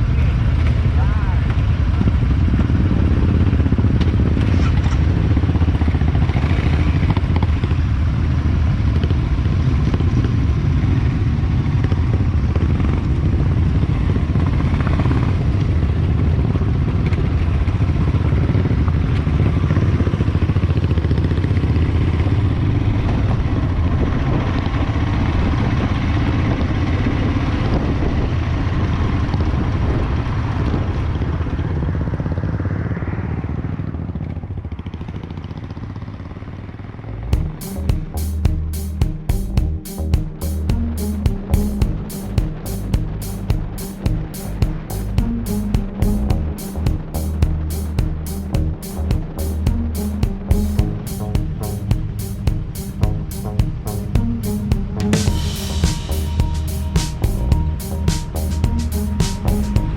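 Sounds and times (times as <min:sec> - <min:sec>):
motorcycle engine rumbling: 0:34.6 - 0:59.9.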